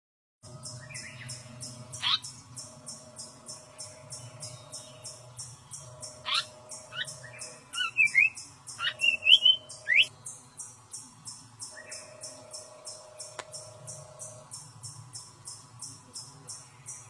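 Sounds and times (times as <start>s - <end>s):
rapid high-pitched pulsing: 0.5s - 17.0s
bird chirps and whistled calls: 2.0s - 10.7s.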